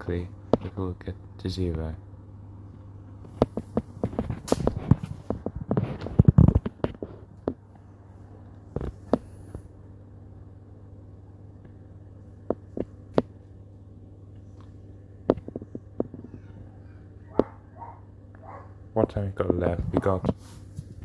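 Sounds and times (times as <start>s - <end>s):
dishwasher humming: 12.2s - 21.0s.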